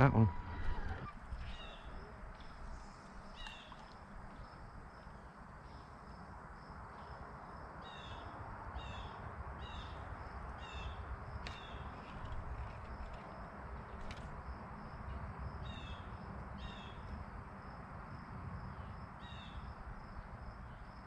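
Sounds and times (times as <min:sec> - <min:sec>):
bird chirping: 0:00.0 - 0:02.6, 0:03.2 - 0:04.6
low steady rumble: 0:00.0 - 0:13.2.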